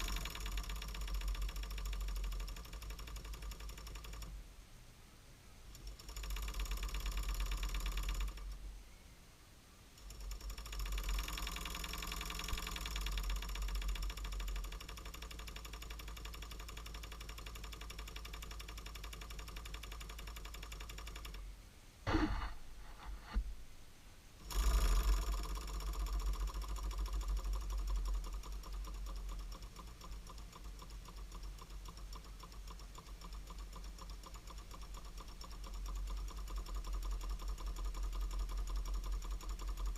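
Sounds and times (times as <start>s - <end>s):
model steam engine running: 0.0s - 4.1s, 10.0s - 21.4s, 24.4s - 39.9s
loud knocks: 22.1s - 23.4s.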